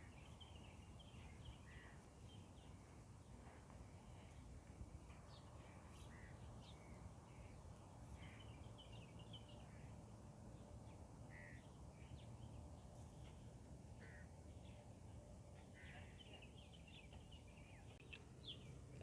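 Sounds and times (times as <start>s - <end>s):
faint bird calls: 0.0s - 8.7s, 11.2s - 12.2s, 13.0s - 15.0s, 15.6s - 18.7s.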